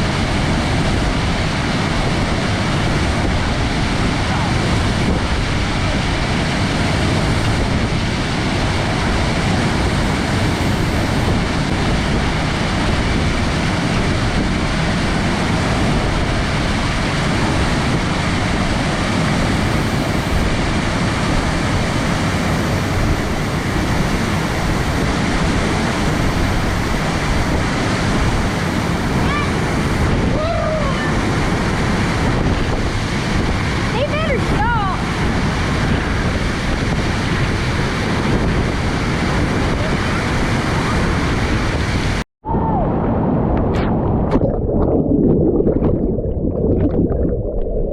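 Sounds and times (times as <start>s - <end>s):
waterfall rushing: 0.0s - 32.3s.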